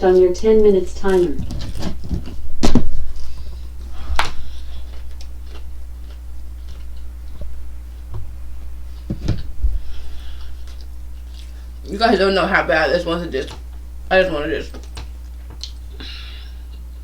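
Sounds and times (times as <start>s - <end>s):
steady low hum: 0.0s - 17.0s
person chewing: 1.1s - 11.8s, 14.7s - 17.0s.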